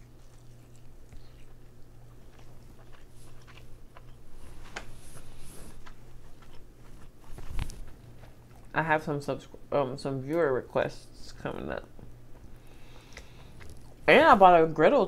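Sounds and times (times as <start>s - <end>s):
person chewing crab meat: 0.0s - 8.8s, 12.0s - 14.1s
steady low hum: 0.0s - 15.0s.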